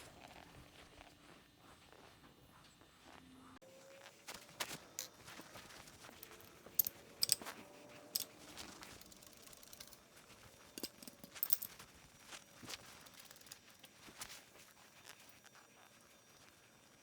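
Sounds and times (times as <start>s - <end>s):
metallic clinks of small tools: 4.9s - 14.1s.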